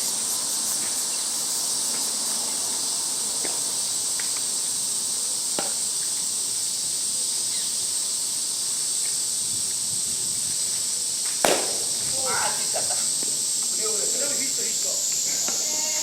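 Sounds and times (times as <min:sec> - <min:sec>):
high-pitched insect drone: 0:00.0 - 0:16.0
sharp knock: 0:11.5 - 0:12.1.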